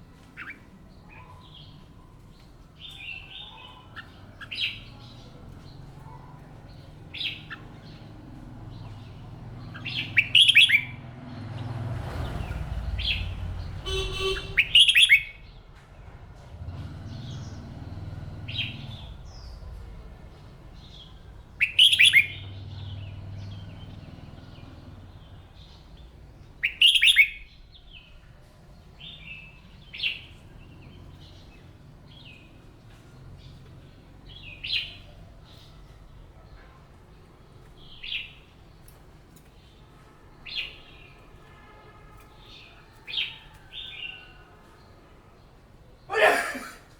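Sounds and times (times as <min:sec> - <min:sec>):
soft bird chirps: 0:00.1 - 0:11.0, 0:20.9 - 0:26.0
bird singing warbling phrases: 0:02.8 - 0:11.0, 0:12.9 - 0:15.4, 0:20.9 - 0:25.4, 0:26.6 - 0:27.6.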